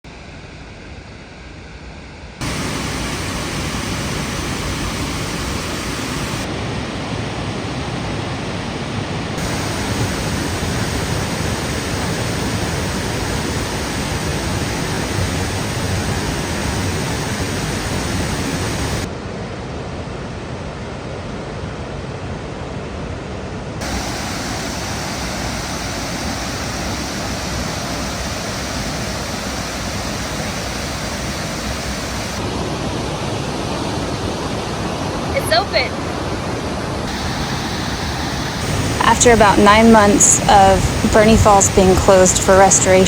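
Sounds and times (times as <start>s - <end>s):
large waterfall rushing: 2.4s - 19.1s, 23.8s - 43.0s.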